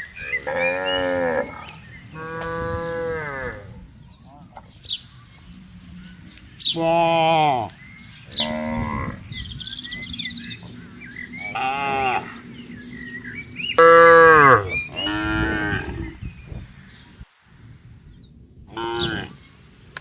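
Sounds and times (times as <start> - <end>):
faint bird chirps: 0.0 - 19.9
cattle mooing: 0.3 - 3.8, 6.7 - 9.4, 10.5 - 12.8, 13.8 - 16.2, 18.7 - 19.4.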